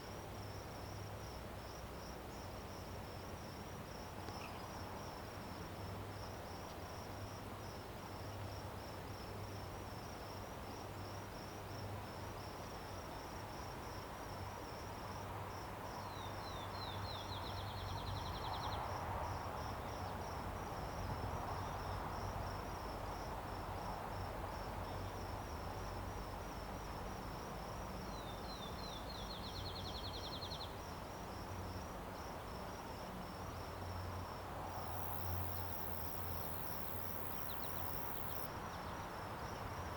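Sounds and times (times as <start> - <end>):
crickets chirping: 0.0 - 39.9
bird singing a trill: 28.2 - 30.7.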